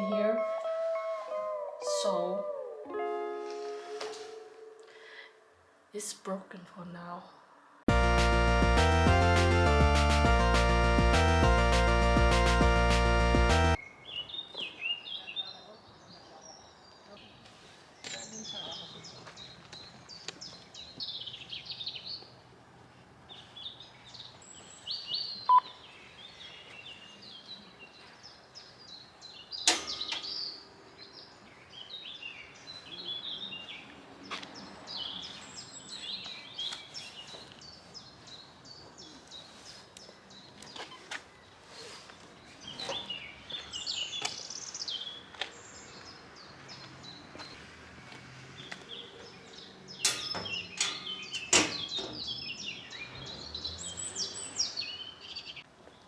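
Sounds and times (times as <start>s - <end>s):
small birds singing: 0.0s - 2.9s, 13.7s - 22.5s, 23.2s - 56.0s.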